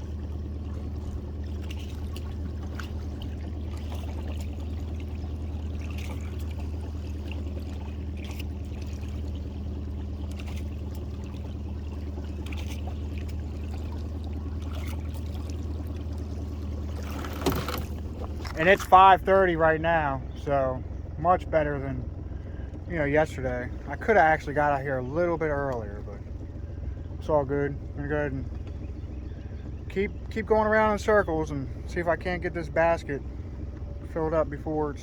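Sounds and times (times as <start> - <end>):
water trickling and dripping: 0.0 - 19.3
boat motor humming: 0.0 - 35.0
light splashes: 0.0 - 35.0.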